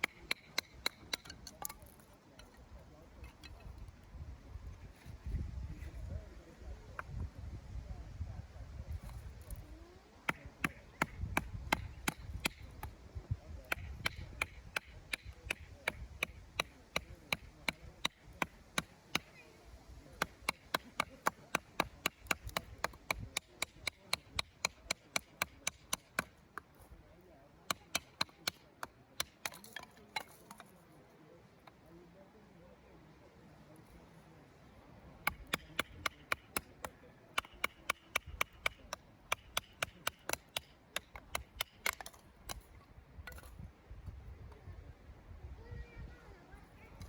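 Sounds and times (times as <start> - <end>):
firewood being chopped: 0.0 - 2.1, 10.2 - 13.0, 13.6 - 19.4, 20.1 - 26.8, 27.7 - 30.7, 35.2 - 43.5.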